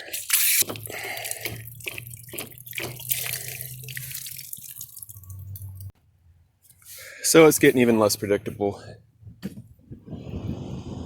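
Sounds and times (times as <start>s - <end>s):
running water splashing: 0.1s - 5.9s.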